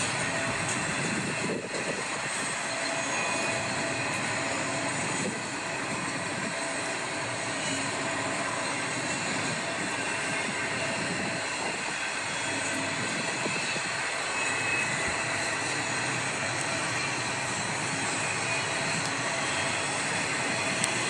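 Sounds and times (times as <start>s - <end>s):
steel wheels on rail: 0.0s - 21.0s.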